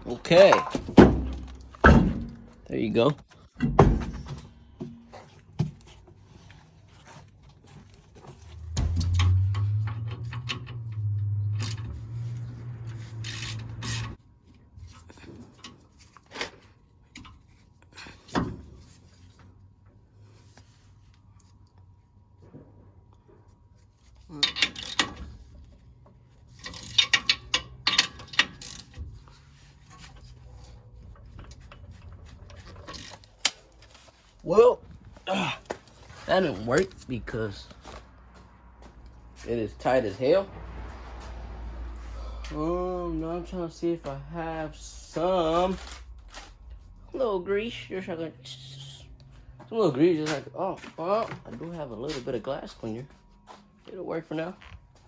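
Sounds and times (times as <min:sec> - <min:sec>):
low hum: 0:08.2 - 0:14.2, 0:40.4 - 0:49.8
metal tools scraping: 0:11.6 - 0:14.2
ratchet wrench clicking: 0:13.1 - 0:14.2.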